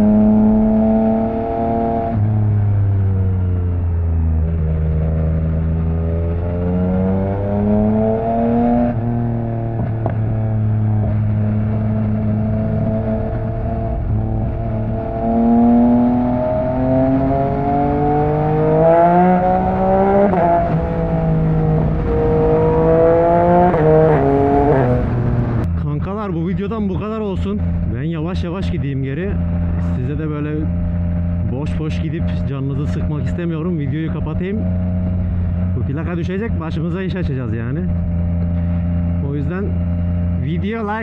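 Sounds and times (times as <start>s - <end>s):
motorcycle engine revving: 0.0s - 25.7s, 27.6s - 41.0s.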